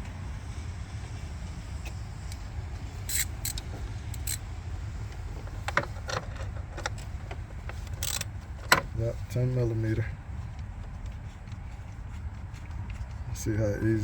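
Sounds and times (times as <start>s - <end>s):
steady low rumble: 0.0s - 14.0s
metallic clicks of hand tools: 3.1s - 3.6s, 4.2s - 4.4s.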